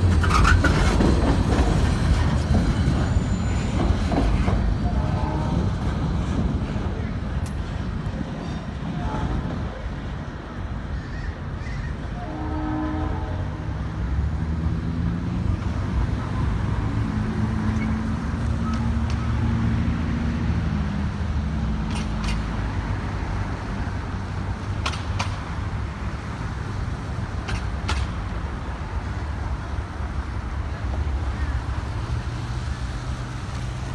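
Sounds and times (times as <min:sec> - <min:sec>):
train wheels rumbling on rails: 0:00.0 - 0:33.9
train horn: 0:04.8 - 0:05.8, 0:12.1 - 0:13.8.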